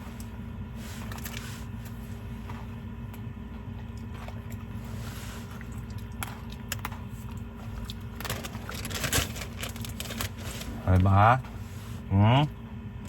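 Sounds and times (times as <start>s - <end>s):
steady low hum: 0.0s - 13.0s
rustling handling noise: 6.8s - 12.1s.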